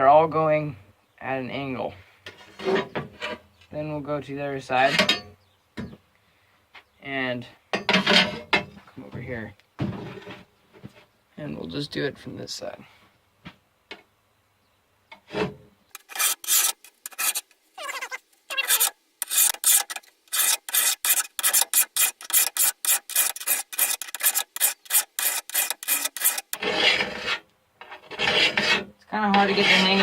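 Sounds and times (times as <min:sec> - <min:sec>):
file rasping on steel blade: 0:16.0 - 0:30.0.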